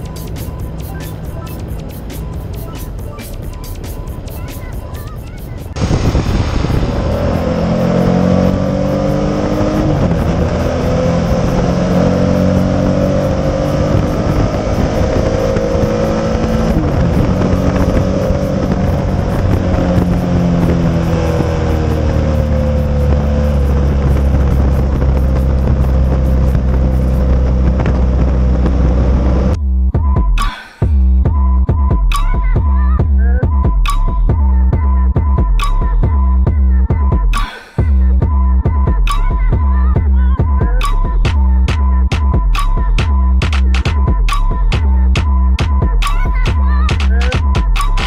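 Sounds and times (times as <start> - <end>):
wind: 0.0 - 29.6
road rumble: 0.0 - 30.0, 30.9 - 48.0
motorcycle engine revving: 5.7 - 29.6.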